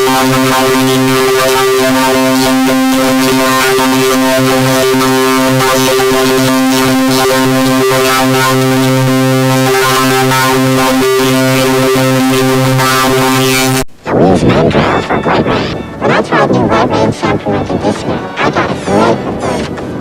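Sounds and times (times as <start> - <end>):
held synthesizer chord: 0.0 - 13.9.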